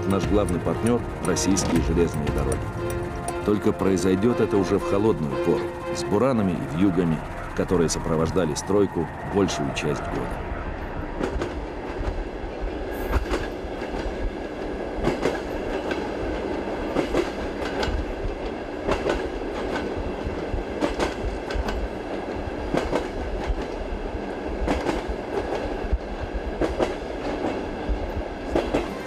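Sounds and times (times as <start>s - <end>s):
wheels clacking over rail joints: 0.0s - 6.0s
train rumbling on rails: 0.0s - 29.0s.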